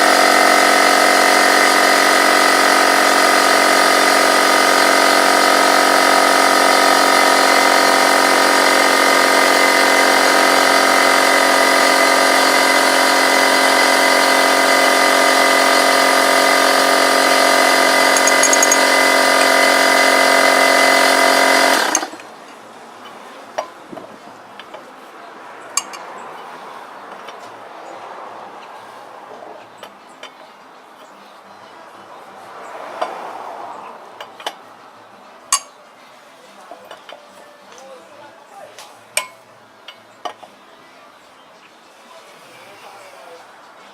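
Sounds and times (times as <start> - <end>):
motor droning: 0.0 - 22.3.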